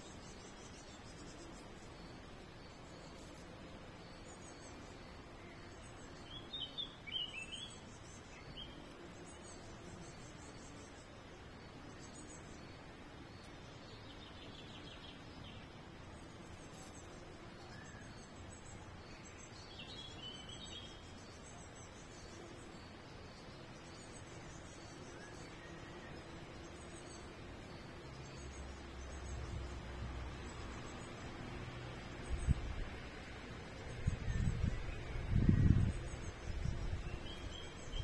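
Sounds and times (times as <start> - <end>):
outdoor background hiss: 0.0 - 38.0
small birds chirping: 0.0 - 38.0.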